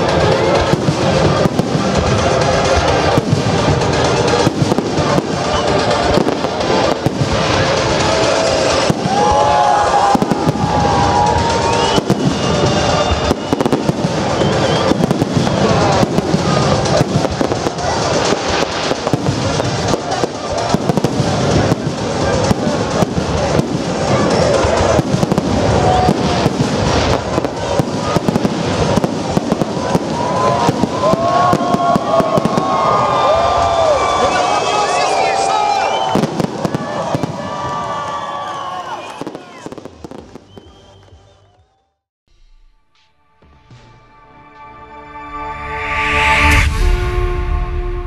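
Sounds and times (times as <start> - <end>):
fireworks bursting: 0.0 - 41.7.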